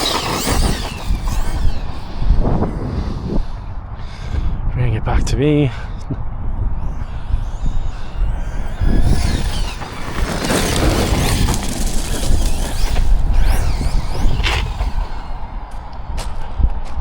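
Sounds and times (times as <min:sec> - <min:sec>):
electric motor whine: 0:00.0 - 0:04.4, 0:06.0 - 0:17.0
tyre noise on tarmac: 0:07.4 - 0:16.4.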